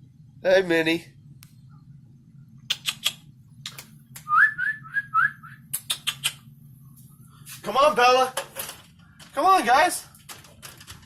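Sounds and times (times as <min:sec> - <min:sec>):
kissing smacks calling cats: 0:02.7 - 0:04.3, 0:05.7 - 0:06.4
short rising whistles: 0:04.2 - 0:05.6.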